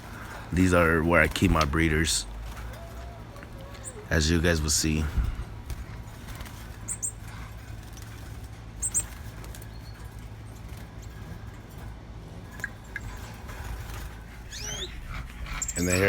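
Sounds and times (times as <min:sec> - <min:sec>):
small birds chirping: 0:00.0 - 0:16.0
steady low rumble: 0:03.2 - 0:08.2, 0:12.7 - 0:16.0.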